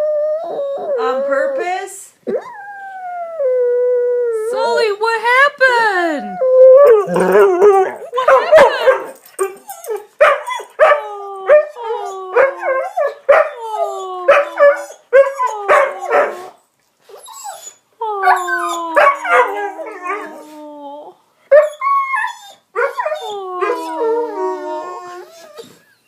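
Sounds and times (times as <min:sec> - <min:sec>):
dog howling and whining: 0:00.0 - 0:04.7, 0:06.2 - 0:25.9
dog barking: 0:10.2 - 0:11.0, 0:13.0 - 0:13.6.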